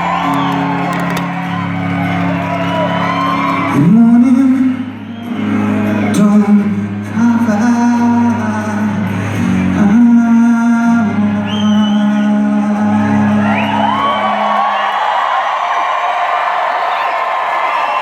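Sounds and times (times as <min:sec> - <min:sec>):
live rock band playing: 0:00.0 - 0:10.0.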